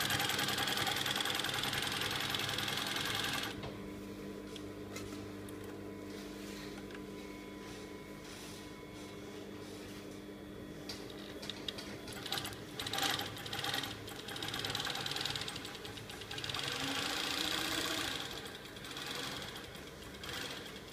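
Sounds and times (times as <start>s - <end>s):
sewing machine stitching: 0.0s - 3.6s, 12.1s - 20.9s
sewing machine motor hum: 0.0s - 3.7s, 11.2s - 20.9s.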